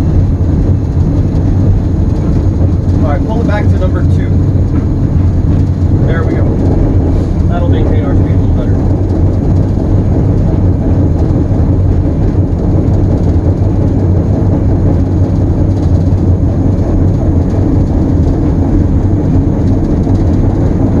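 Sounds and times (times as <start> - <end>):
diesel locomotive engine humming: 0.0 - 21.0
train rolling rumble: 0.0 - 21.0.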